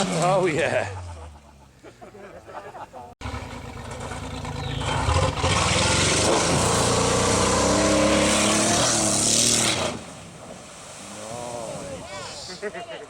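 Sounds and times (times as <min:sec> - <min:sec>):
vehicle engine running hard: 0:03.2 - 0:09.0.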